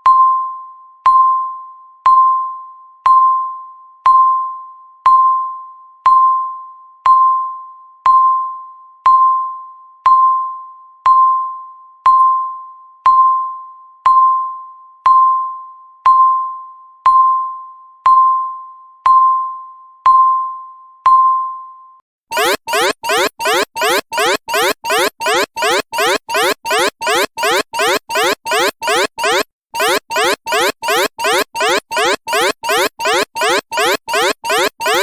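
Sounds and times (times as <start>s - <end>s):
rising electronic alarm sweeps: 22.3s - 35.0s
timer beeping: 22.3s - 35.0s.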